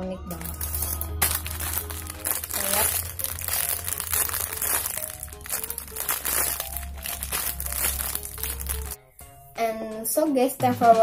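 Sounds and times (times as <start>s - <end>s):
light background music: 0.0s - 11.0s
plastic bag crinkling: 0.3s - 9.0s.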